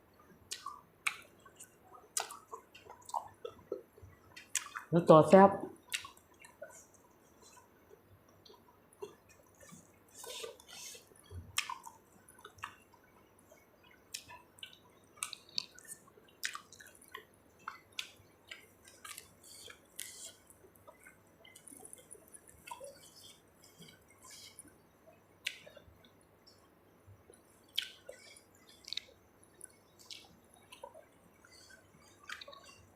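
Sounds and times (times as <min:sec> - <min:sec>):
lip smacks: 0:00.5 - 0:03.8, 0:04.4 - 0:04.9, 0:05.8 - 0:06.8, 0:09.0 - 0:12.8, 0:14.1 - 0:20.4, 0:27.7 - 0:32.8
small mouth clicks: 0:00.5 - 0:03.8, 0:04.4 - 0:04.9, 0:05.8 - 0:06.8, 0:08.5 - 0:12.8, 0:14.1 - 0:24.7, 0:27.7 - 0:32.8
wet chewing: 0:00.5 - 0:04.9, 0:05.8 - 0:07.7, 0:08.4 - 0:24.7, 0:27.4 - 0:32.9.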